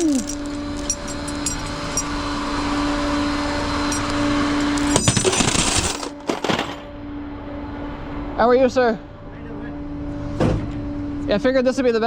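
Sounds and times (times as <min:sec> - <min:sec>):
blower fan humming: 0:00.0 - 0:06.6.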